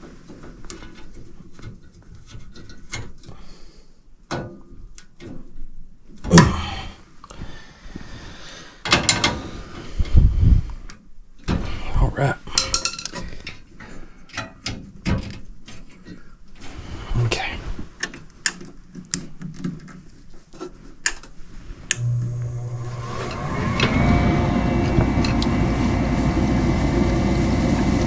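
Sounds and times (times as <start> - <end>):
metal clinking and clattering: 12.6 - 13.6.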